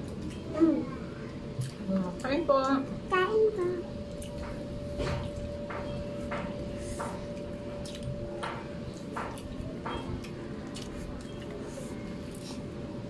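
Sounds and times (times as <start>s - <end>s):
faint steady hum: 0.0s - 13.0s
wet chewing: 1.2s - 2.8s, 4.0s - 12.9s.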